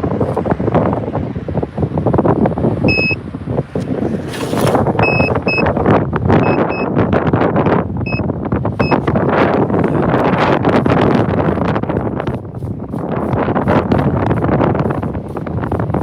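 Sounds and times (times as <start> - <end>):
strong wind buffeting microphone: 0.0 - 16.0
short high-pitched beeps: 2.9 - 3.2, 5.0 - 5.7, 6.4 - 7.0, 8.0 - 8.2, 8.8 - 9.0.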